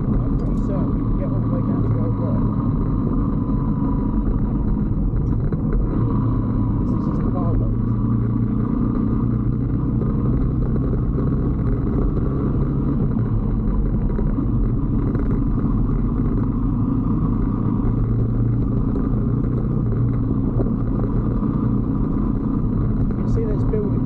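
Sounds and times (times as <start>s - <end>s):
motorbike engine running: 0.0s - 24.0s.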